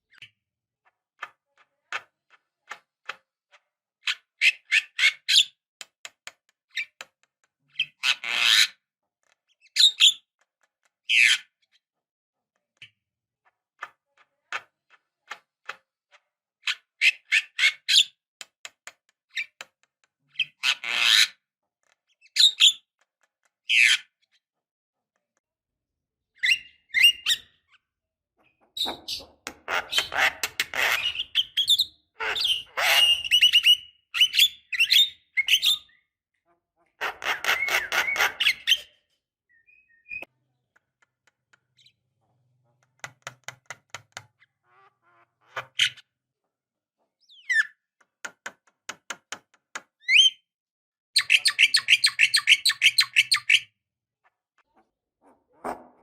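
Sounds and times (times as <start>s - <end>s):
harsh rasping bird squawks: 29.1s - 33.8s, 36.9s - 38.9s.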